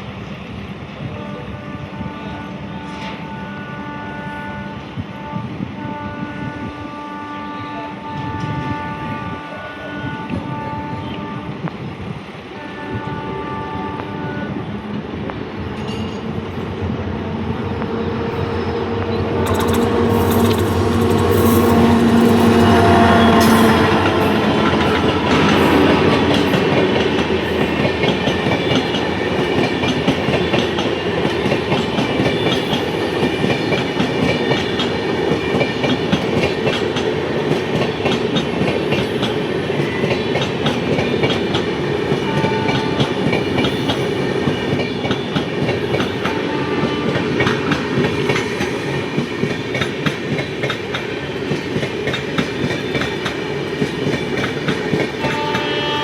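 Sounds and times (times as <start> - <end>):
train wheels clattering over rails: 19.4 - 55.9.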